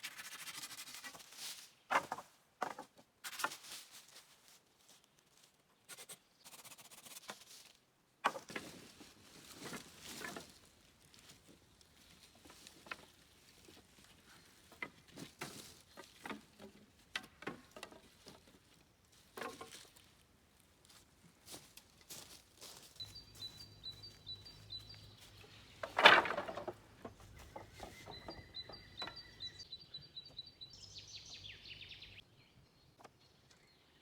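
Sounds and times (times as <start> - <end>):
rustling: 7.3 - 16.9, 20.8 - 29.6.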